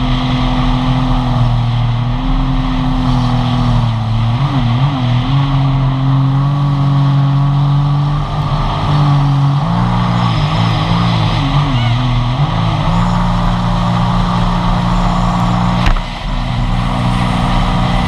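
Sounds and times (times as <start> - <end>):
jet ski engine running: 8.2 - 18.0.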